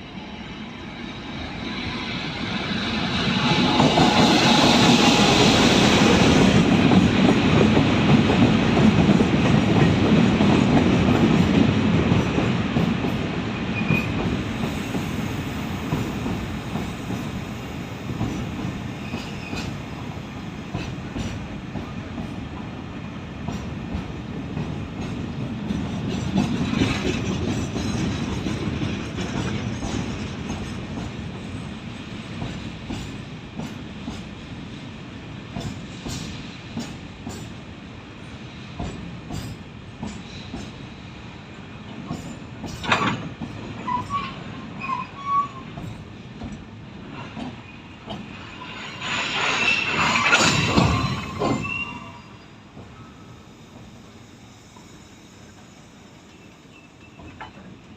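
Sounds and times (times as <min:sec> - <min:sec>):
train wheels clattering: 0:02.9 - 0:20.0, 0:20.6 - 0:22.7, 0:23.4 - 0:34.4, 0:35.5 - 0:37.6, 0:38.7 - 0:41.0, 0:41.9 - 0:53.0.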